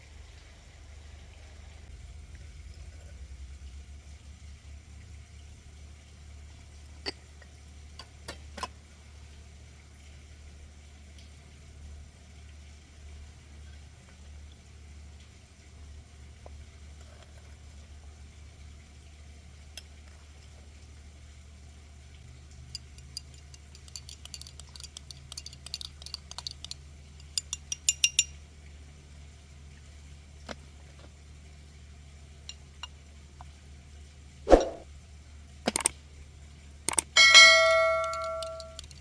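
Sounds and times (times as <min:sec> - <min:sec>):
utensils clinking against dishes: 0:22.7 - 0:28.3, 0:36.9 - 0:39.0.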